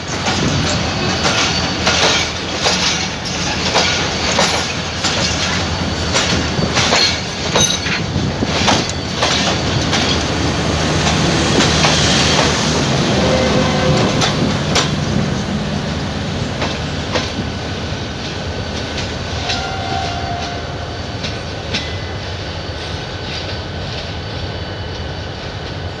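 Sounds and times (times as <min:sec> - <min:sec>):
wheels clacking over rail joints: 0:00.0 - 0:15.6.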